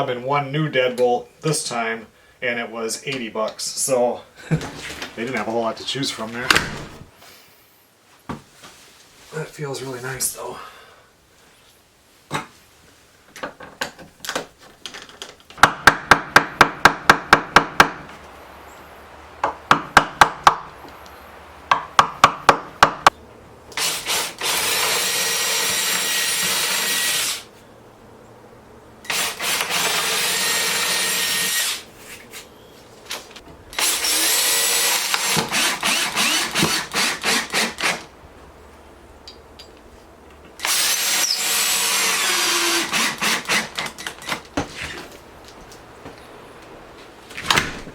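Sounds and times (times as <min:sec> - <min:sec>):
power drill running: 0:23.8 - 0:27.5, 0:29.1 - 0:31.8, 0:33.8 - 0:38.0, 0:40.6 - 0:44.1.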